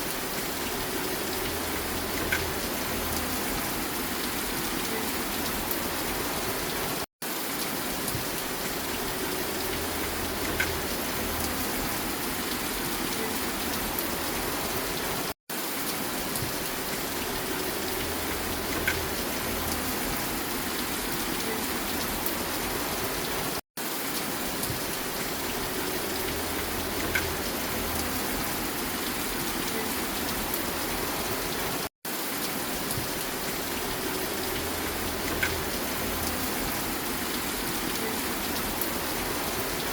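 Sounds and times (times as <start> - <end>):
steady rain: 0.0 - 39.9
faint rain drop ticks: 1.4 - 3.8, 9.5 - 12.0, 17.6 - 20.2, 26.2 - 28.5, 34.1 - 39.8.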